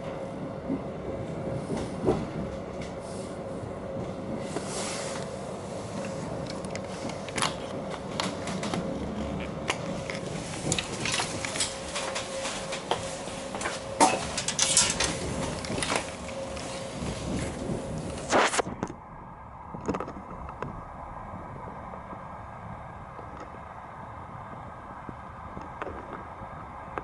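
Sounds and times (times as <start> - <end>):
train carriage running noise: 0.0 - 27.0
train wheels clacking over rail joints: 9.6 - 18.2.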